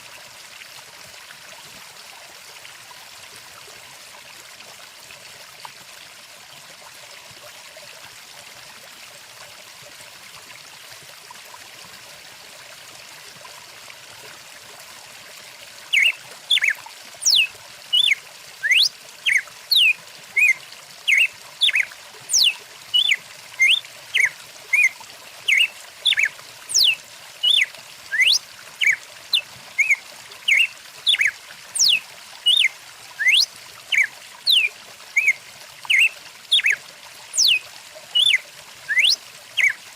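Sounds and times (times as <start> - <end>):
stream flowing: 0.0 - 39.9
songbird whistling: 15.9 - 24.9, 25.5 - 36.8, 37.4 - 37.6, 38.2 - 39.8.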